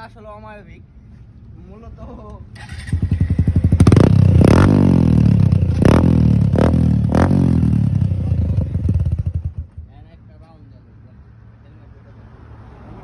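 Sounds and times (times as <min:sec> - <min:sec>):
motorcycle engine revving: 0:02.6 - 0:10.0.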